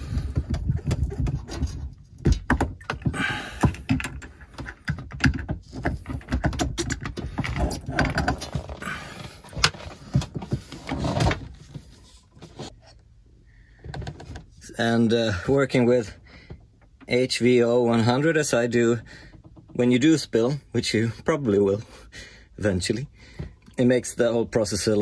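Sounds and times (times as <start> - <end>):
tools clicking and knocking: 0.1 - 8.8.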